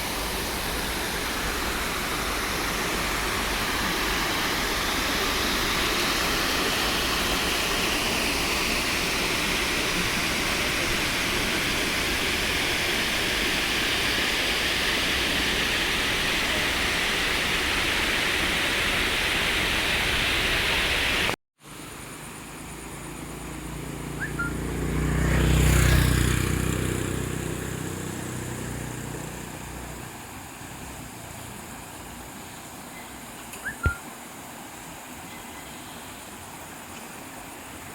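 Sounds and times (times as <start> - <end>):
water rushing over a dam: 0.0 - 21.4
vehicle passing: 22.8 - 30.0.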